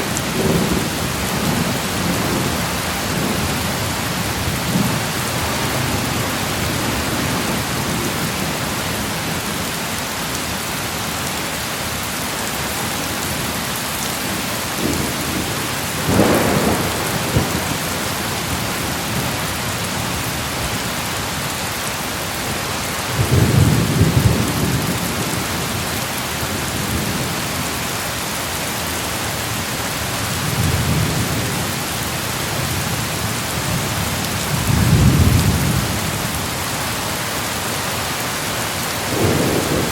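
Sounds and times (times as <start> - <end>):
steady rain: 0.0 - 39.9
thunder rumbling: 14.7 - 19.4.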